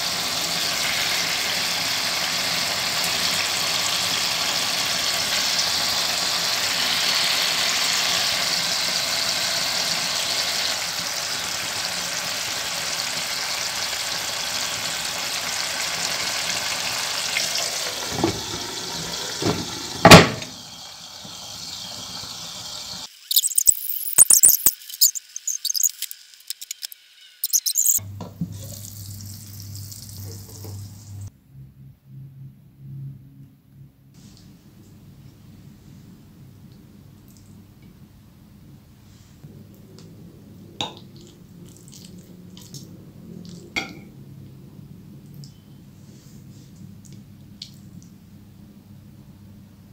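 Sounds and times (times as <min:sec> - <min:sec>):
meat sizzling in a pan: 0:00.0 - 0:28.0
faint crackles and clicks: 0:23.3 - 0:28.0.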